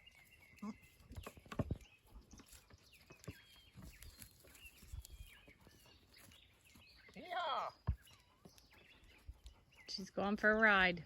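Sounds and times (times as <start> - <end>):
faint thumps and knocks: 1.1 - 4.0.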